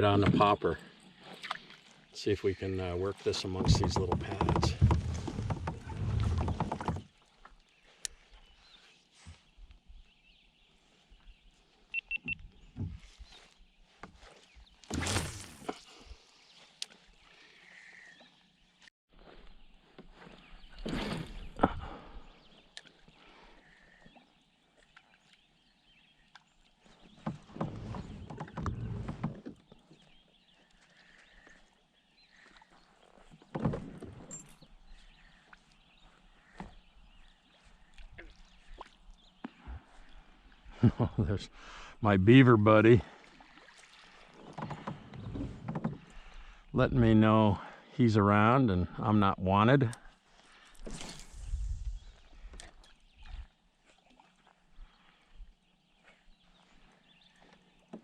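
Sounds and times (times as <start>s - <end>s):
open water ambience: 0.0s - 58.0s
water splashing: 3.1s - 7.4s, 42.6s - 46.6s
kayak handling noise: 3.3s - 8.5s, 12.1s - 16.1s, 26.2s - 31.6s, 32.4s - 38.4s, 44.1s - 46.6s, 56.9s - 58.0s
soft knocks on hull: 3.6s - 7.1s.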